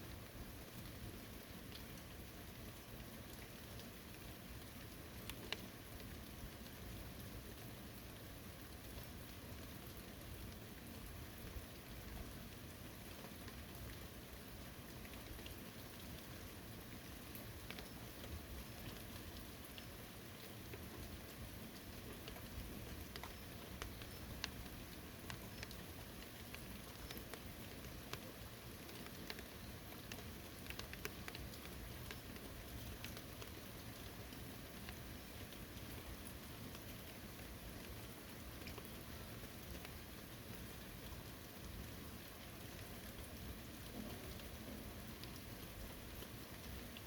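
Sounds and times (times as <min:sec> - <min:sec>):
light rain falling: 0:00.0 - 0:47.0
raindrops ticking on surfaces: 0:00.0 - 0:47.0.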